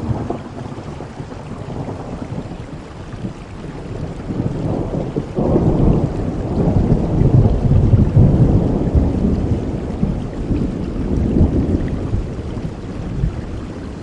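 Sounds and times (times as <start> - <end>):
steady rain: 0.0 - 14.0
thunder rumbling: 0.0 - 14.0.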